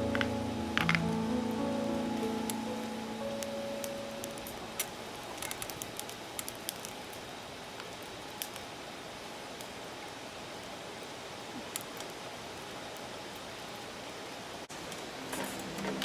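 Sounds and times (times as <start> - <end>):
background music: 0.0 - 5.3, 15.1 - 16.0
fire crackling and popping: 0.0 - 16.0
fire hiss: 0.0 - 16.0.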